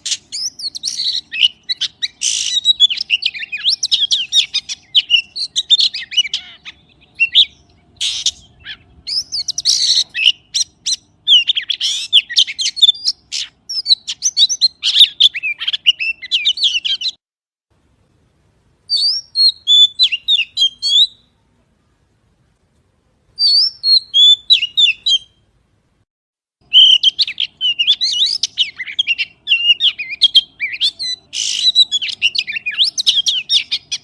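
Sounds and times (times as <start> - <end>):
magpie singing: 0.0 - 17.2, 18.9 - 21.3, 23.4 - 25.4, 26.6 - 34.0.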